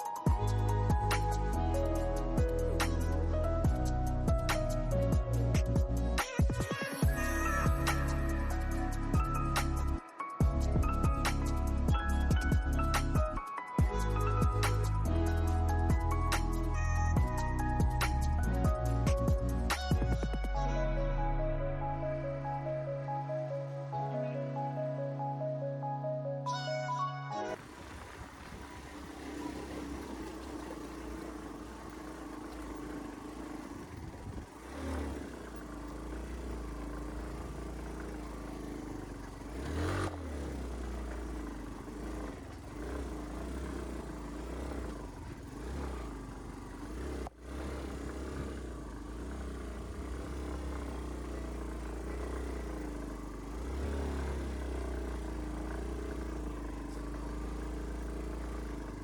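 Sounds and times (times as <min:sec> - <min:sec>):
motorcycle engine running: 0:00.0 - 0:20.5, 0:27.6 - 0:59.0.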